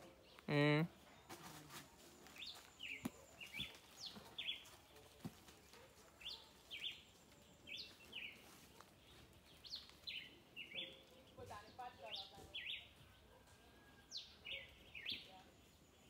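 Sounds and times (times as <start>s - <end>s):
bird chirping: 2.3s - 5.0s, 5.7s - 16.0s.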